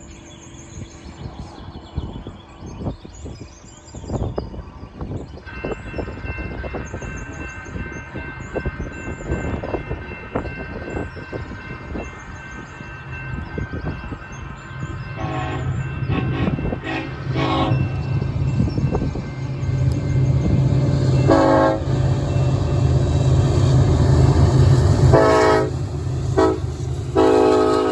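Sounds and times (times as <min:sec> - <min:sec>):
low locomotive rumble: 0:00.0 - 0:27.9
crossing signal bell ringing: 0:02.8 - 0:27.9
locomotive horn blasts: 0:15.2 - 0:18.1, 0:21.2 - 0:22.0, 0:25.0 - 0:27.9.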